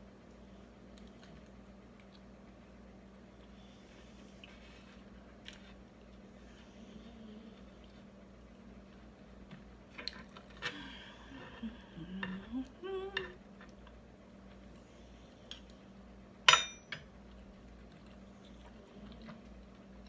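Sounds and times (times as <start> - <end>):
cutlery clinking on a plate: 16.5 - 17.1.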